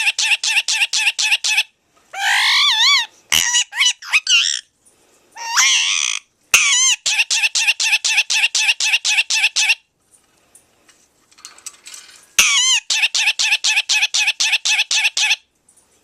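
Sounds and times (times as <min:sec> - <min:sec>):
parakeet talking: 0:00.0 - 0:04.7, 0:05.4 - 0:09.8, 0:12.4 - 0:15.4
parakeet warbling calls: 0:00.0 - 0:04.7, 0:05.4 - 0:09.8, 0:12.4 - 0:15.4.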